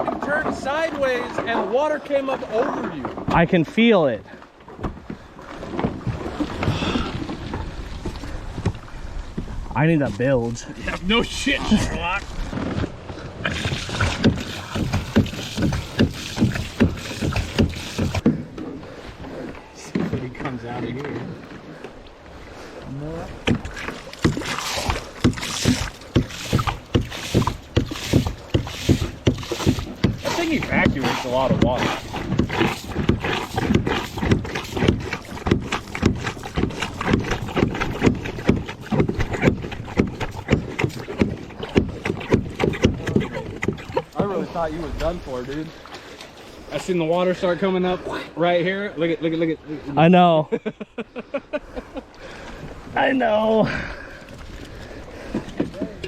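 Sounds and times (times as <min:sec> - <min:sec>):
paddle strokes splashing water: 0:00.0 - 0:48.4, 0:51.2 - 0:56.0.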